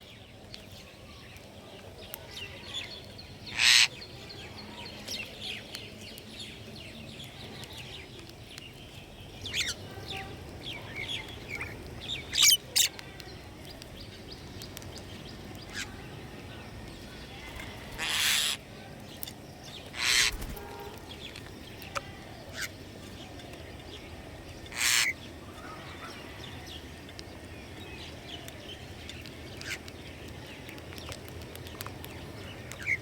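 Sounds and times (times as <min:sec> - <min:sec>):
songbirds chirping: 0:00.0 - 0:33.0
loud short bird bursts: 0:20.0 - 0:21.0.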